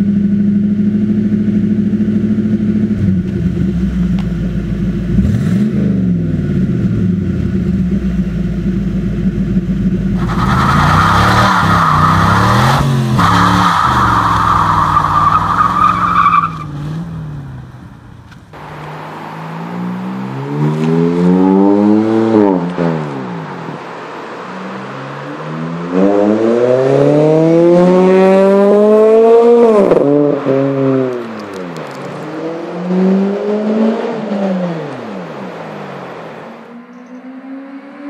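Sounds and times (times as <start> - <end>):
car engine revving: 0.6 - 38.0.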